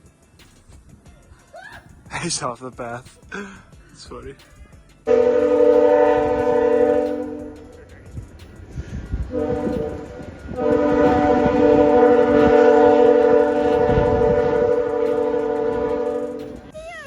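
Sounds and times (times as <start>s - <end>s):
train horn chord: 5.1s - 8.0s, 9.2s - 16.7s.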